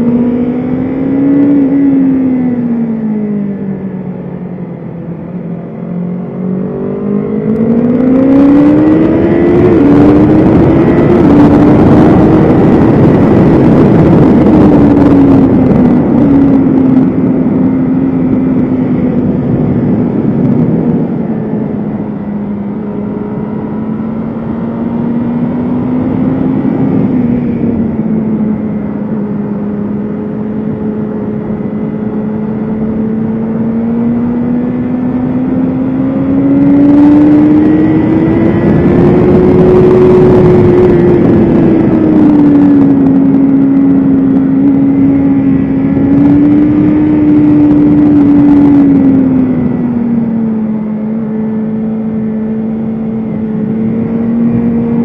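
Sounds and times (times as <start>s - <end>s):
motorcycle engine accelerating: 0.0s - 55.0s
wind rush: 0.0s - 55.0s.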